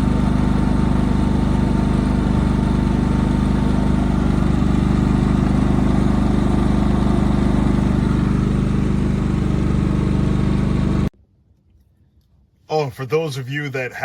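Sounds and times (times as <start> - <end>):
generator engine running: 0.0 - 11.1.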